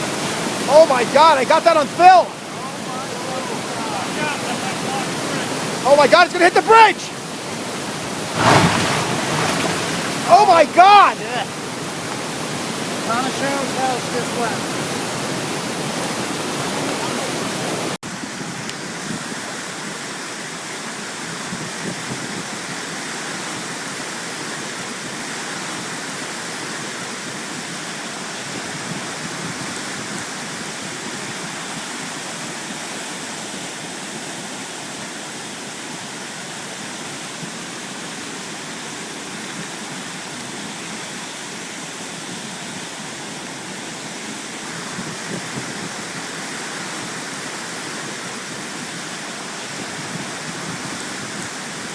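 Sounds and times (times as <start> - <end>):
brook rushing: 0.0 - 18.0.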